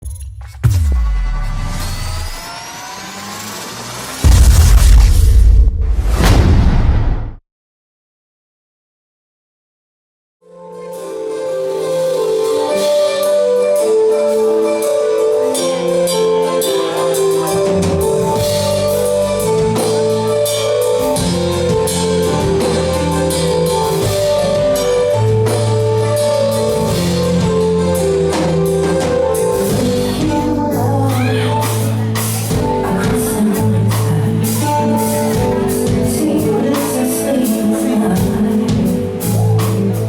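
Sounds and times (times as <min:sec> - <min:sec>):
drum kit: 0:00.0 - 0:02.8, 0:04.0 - 0:07.3, 0:11.8 - 0:40.0
bass: 0:00.0 - 0:02.9, 0:04.0 - 0:07.4, 0:14.8 - 0:40.0.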